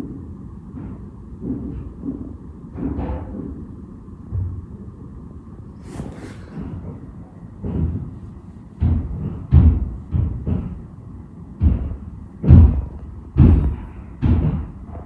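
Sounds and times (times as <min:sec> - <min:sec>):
heavy dull thuds through walls: 0:11.6 - 0:15.0.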